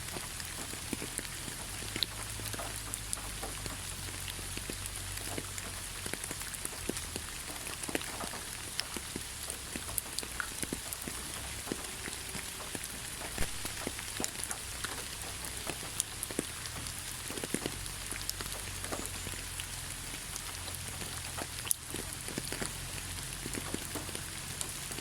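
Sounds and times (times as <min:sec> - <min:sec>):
rain falling: 0:00.0 - 0:25.0
raindrops ticking close by: 0:00.0 - 0:25.0.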